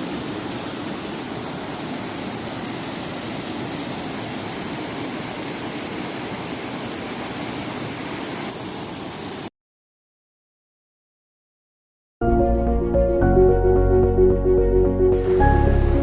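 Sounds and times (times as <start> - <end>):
waterfall roaring: 0.0 - 9.5.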